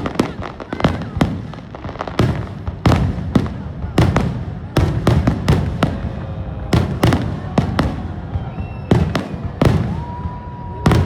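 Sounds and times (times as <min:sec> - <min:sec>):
high whistle: 0:08.4 - 0:11.0.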